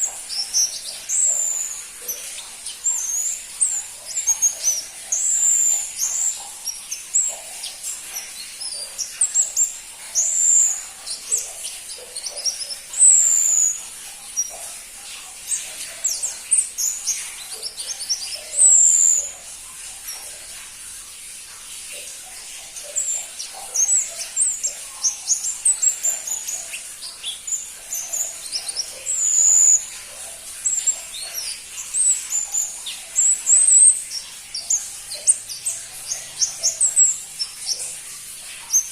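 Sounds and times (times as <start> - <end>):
bird singing high chirps: 0.0 - 14.7, 22.8 - 30.0.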